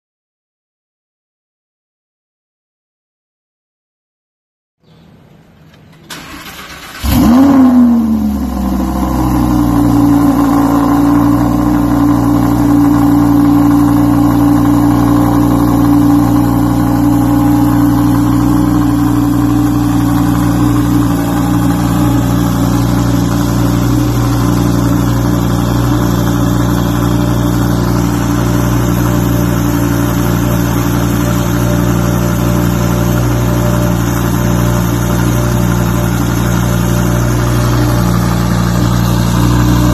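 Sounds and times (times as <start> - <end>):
engine starter cranking: 5.6 - 7.9
car engine revving and idling: 6.1 - 39.9.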